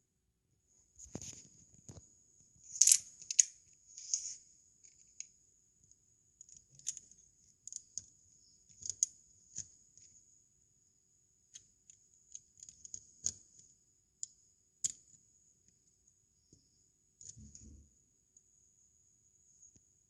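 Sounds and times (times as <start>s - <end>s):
plastic bricks clicking and rattling: 2.8s - 3.5s.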